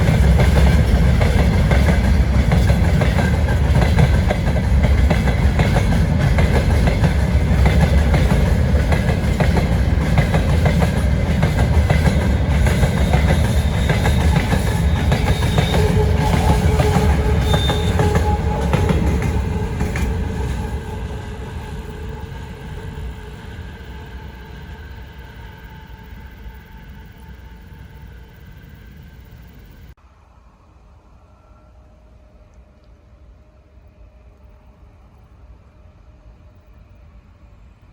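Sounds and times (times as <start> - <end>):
wheels clacking over rail joints: 0.0 - 22.0
freight train rumbling past: 0.0 - 37.9.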